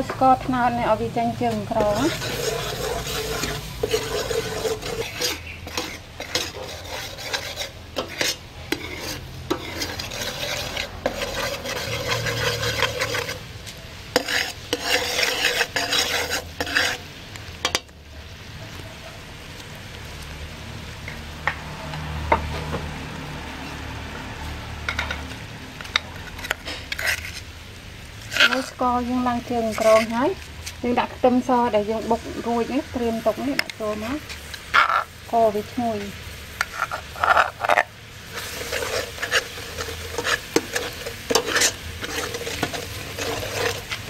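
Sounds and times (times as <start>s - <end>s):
sugar sizzling in a pan: 0.0s - 21.6s, 22.4s - 44.0s
utensil scraping pan bottom: 1.4s - 13.5s, 14.1s - 17.8s, 24.9s - 27.5s, 28.2s - 31.1s, 32.0s - 44.0s.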